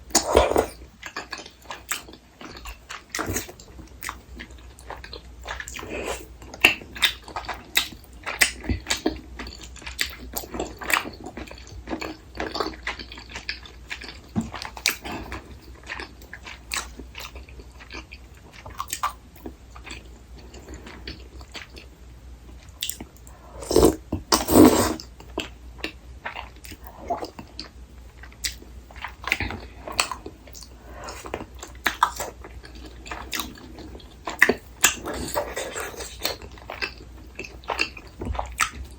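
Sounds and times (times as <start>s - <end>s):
wet chewing and chomping: 22.8s - 38.9s.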